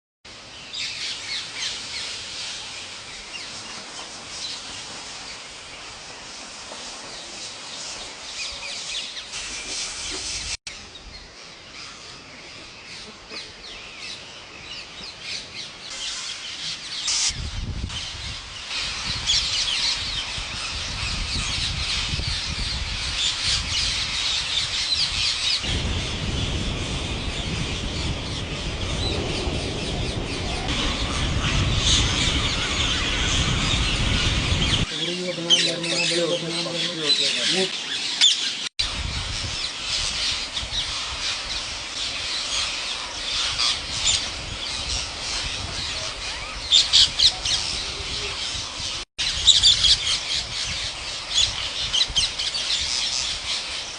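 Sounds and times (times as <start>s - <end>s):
low rumble: 25.6s - 34.9s.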